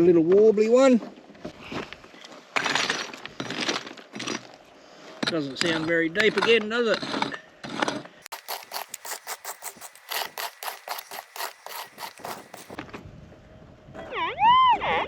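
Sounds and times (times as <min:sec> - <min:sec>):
rhythmic scraping on gravelly ground: 0:07.0 - 0:12.8.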